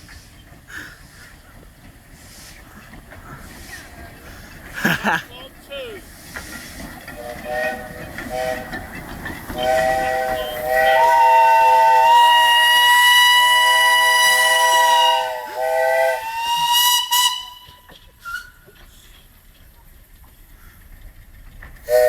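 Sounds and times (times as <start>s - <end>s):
steam hissing: 0.0s - 19.4s, 21.8s - 22.0s
steam locomotive whistles: 6.5s - 18.8s.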